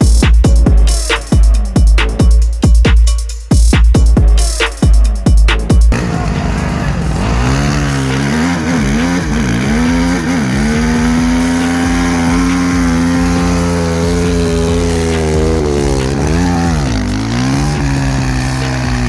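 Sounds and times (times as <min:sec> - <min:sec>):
motorcycle engine revving: 0:05.9 - 0:19.0.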